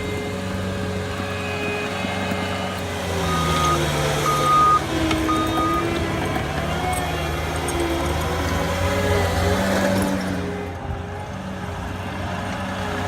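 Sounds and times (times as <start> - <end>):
tractor engine running: 0.0 - 13.0
reversing alarm beeps: 3.2 - 6.0.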